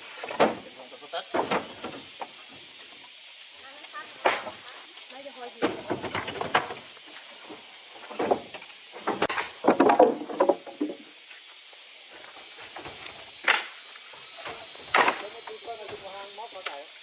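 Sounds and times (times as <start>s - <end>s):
knocks and clattering: 8.1s - 11.0s.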